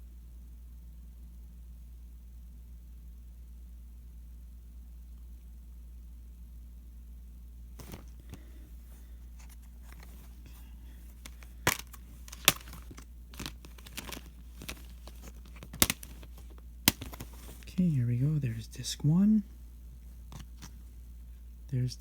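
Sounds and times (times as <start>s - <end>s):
low steady hum: 0.0s - 22.0s
plastic case rustling and clicking: 7.8s - 8.5s, 9.4s - 17.8s, 20.2s - 20.8s
plastic case snapping: 11.2s - 17.7s.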